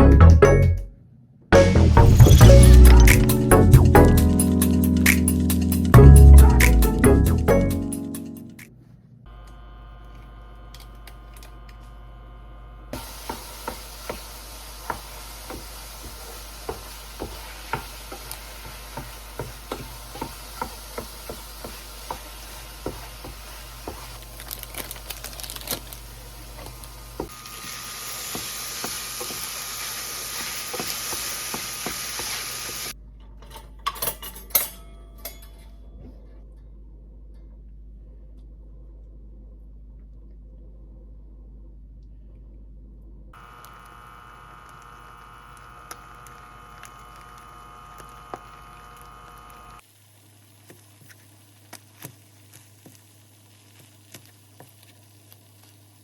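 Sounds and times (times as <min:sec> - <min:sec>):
steady hiss: 0:13.0 - 0:33.0.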